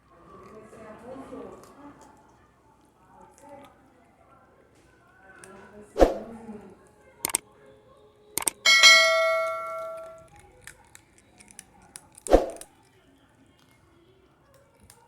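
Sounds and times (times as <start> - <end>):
bowl clanging and ringing: 8.6 - 10.2
bowl knocking and clinking: 8.6 - 10.2.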